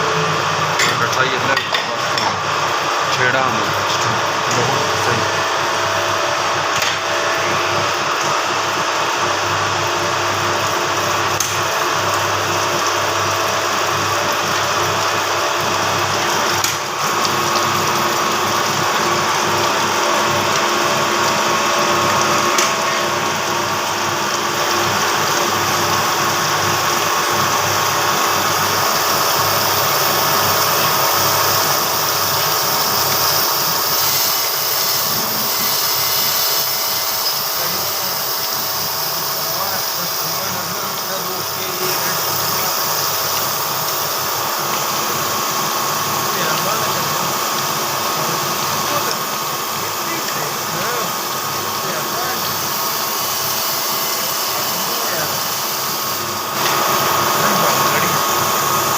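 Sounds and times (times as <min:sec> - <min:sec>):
grinding machine humming and hissing: 0:00.0 - 0:58.9.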